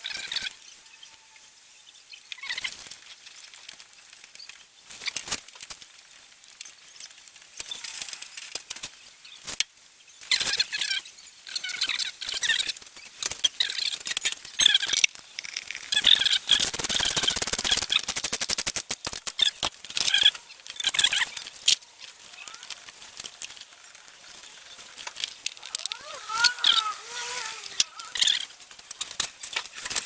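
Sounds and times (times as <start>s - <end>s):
fast run of clicks: 11.5s - 30.0s
squeaks: 19.4s - 28.6s.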